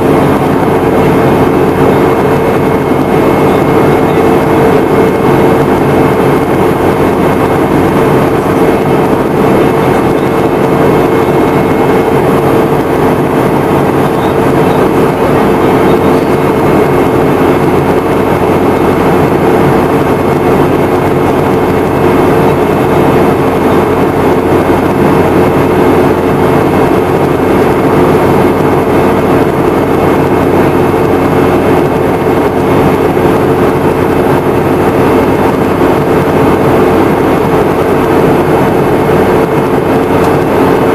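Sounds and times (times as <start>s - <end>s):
airplane cabin engine drone: 0.0s - 40.9s
constant hum: 0.0s - 40.9s.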